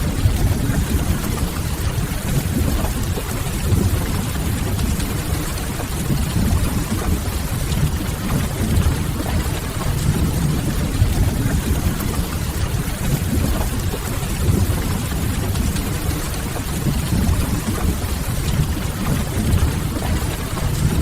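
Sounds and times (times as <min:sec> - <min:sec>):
low even rumble: 0:00.0 - 0:21.0
rain against a window: 0:00.0 - 0:21.0.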